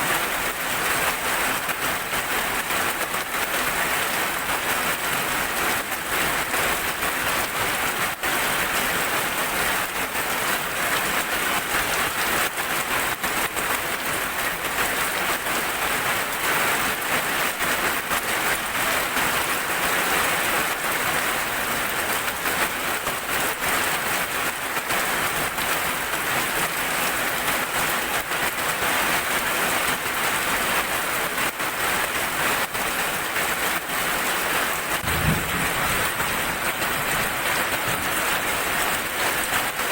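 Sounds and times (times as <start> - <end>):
heavy rain hissing: 17.8 - 39.9.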